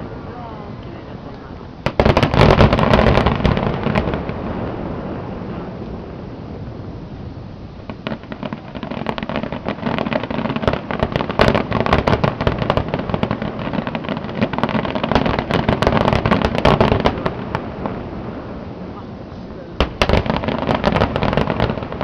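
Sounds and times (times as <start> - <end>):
fireworks crackling: 0.0 - 22.0
low rumble: 3.3 - 8.8.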